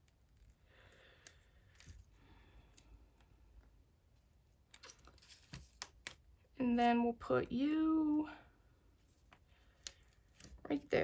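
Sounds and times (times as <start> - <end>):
paper rustling: 4.8 - 6.0.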